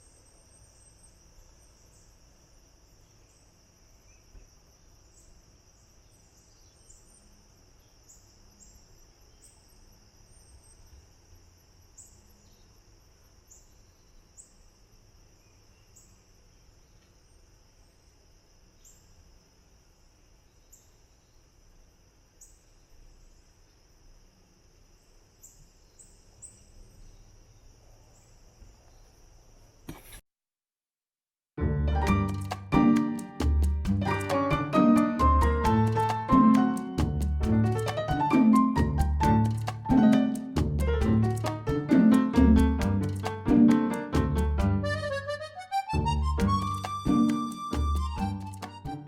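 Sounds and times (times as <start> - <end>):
insects chirping: 0.0 - 30.2, 35.8 - 42.4, 44.9 - 49.0
insects trilling: 0.0 - 30.2.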